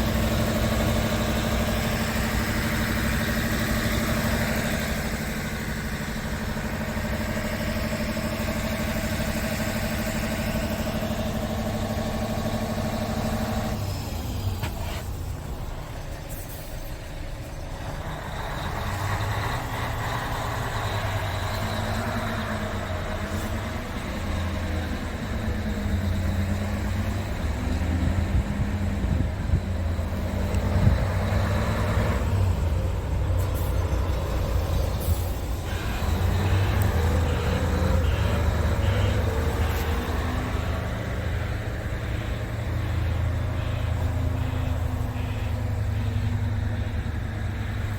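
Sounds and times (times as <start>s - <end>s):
diesel truck engine running: 0.0s - 47.9s.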